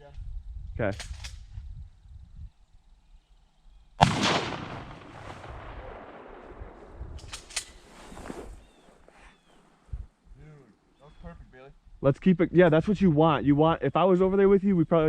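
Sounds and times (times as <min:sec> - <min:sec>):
shotgun shot echoing: 0:04.0 - 0:07.8.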